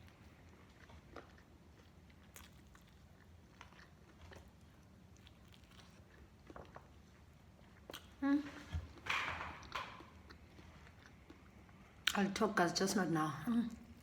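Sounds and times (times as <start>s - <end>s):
chewing fried chicken: 0.0s - 12.3s.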